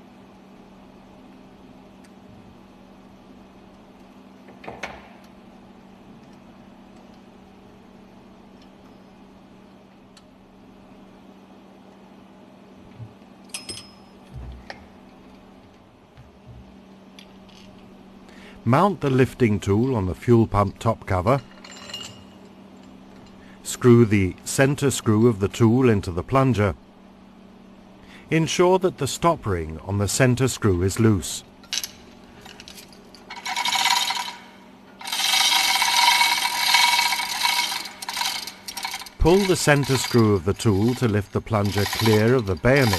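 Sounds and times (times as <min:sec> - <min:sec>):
low machinery hum: 0:00.0 - 0:42.9
metal screw rasping and scraping: 0:31.8 - 0:42.9.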